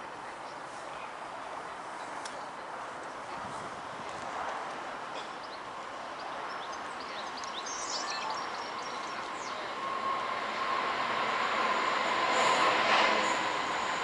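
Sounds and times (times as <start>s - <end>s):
birds chirping: 5.1s - 10.8s
train whine: 8.1s - 14.0s.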